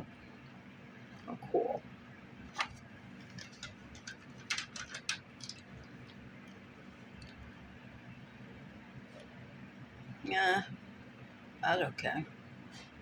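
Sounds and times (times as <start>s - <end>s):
plastic packaging clicks and crackles: 2.6s - 6.6s.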